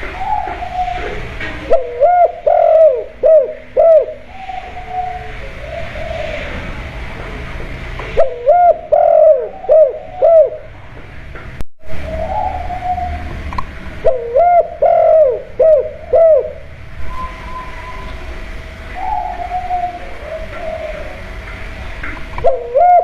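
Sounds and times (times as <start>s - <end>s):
dove cooing: 0.0s - 10.8s, 11.9s - 23.0s
steady background hum: 0.0s - 23.0s.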